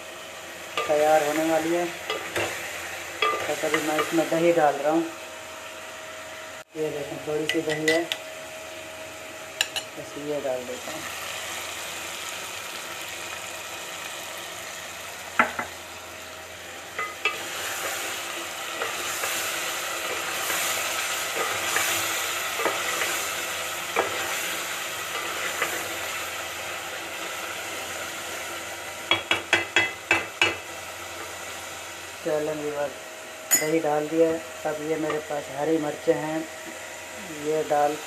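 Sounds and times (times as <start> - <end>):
food sizzling in a pot: 0.0 - 38.0
spoon knocking against pot: 29.1 - 30.6.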